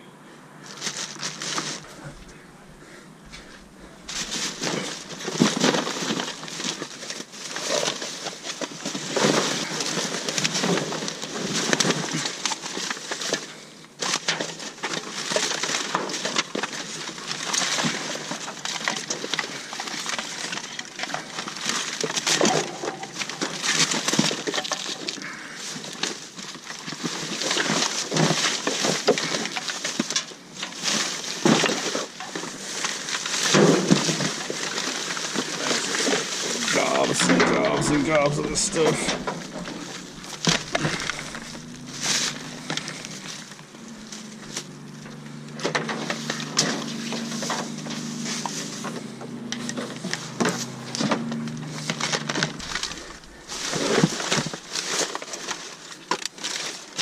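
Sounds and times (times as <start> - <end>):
rustling and crunching of rubbish: 0.0 - 57.0.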